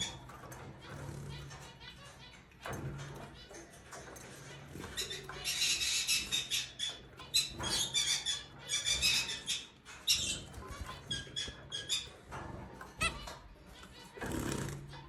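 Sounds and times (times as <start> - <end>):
finches chirping: 4.7 - 15.0.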